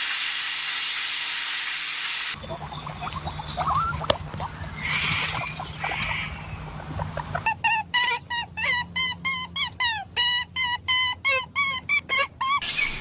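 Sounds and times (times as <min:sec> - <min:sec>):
steady low hum: 0:02.3 - 0:11.9.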